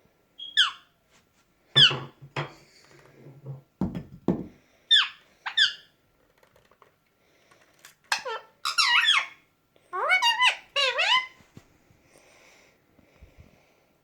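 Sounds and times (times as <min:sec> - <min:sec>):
parakeet squawking: 0:00.4 - 0:00.9, 0:01.8 - 0:02.1, 0:04.9 - 0:05.9, 0:08.1 - 0:11.4.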